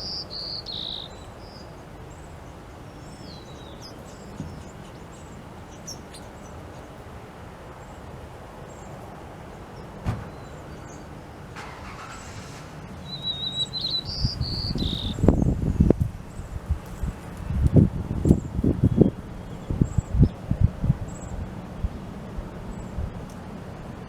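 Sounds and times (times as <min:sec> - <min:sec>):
small bird singing: 0:00.0 - 0:07.0, 0:12.8 - 0:17.1, 0:18.2 - 0:22.0.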